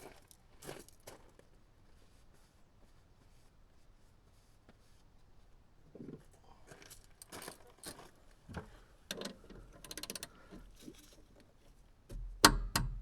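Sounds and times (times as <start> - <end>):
metal clicks and knocks: 12.1 - 13.0.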